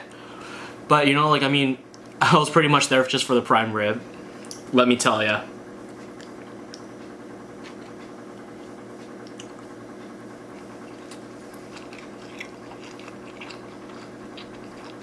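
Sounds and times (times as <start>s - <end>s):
low electrical hum: 0.0s - 15.0s
wet chewing sounds: 5.8s - 9.8s, 10.5s - 15.0s.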